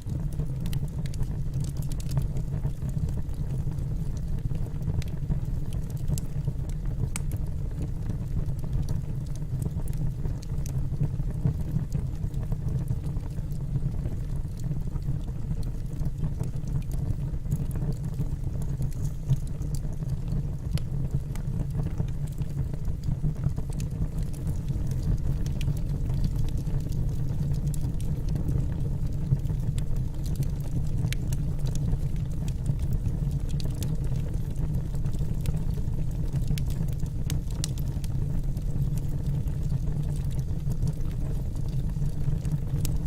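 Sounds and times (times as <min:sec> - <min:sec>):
crackles and pops from logs: 0:00.0 - 0:43.0
low rumble of flames: 0:00.0 - 0:43.0.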